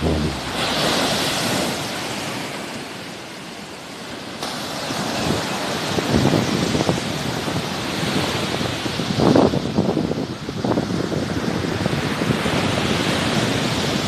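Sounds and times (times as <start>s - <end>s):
sea surf washing ashore: 0.0s - 10.5s.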